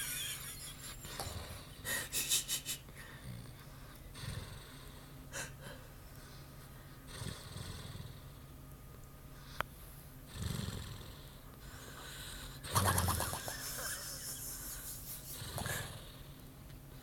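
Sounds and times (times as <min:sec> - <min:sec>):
dog snoring: 0:03.1 - 0:05.2, 0:07.1 - 0:08.4, 0:10.3 - 0:13.8, 0:15.4 - 0:16.3.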